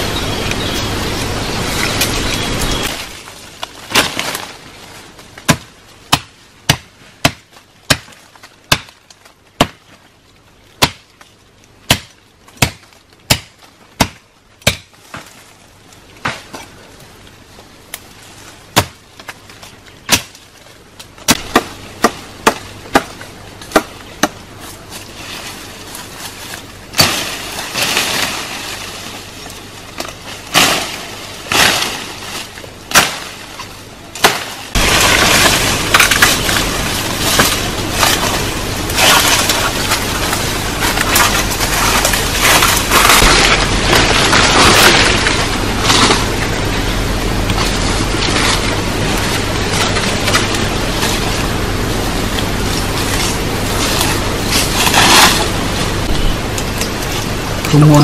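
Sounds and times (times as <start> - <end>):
steady rushing noise: 0.0 - 3.2, 30.4 - 58.0.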